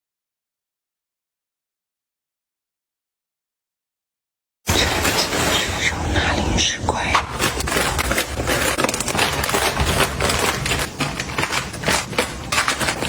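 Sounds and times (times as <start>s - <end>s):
hands handling small items: 7.0s - 13.0s.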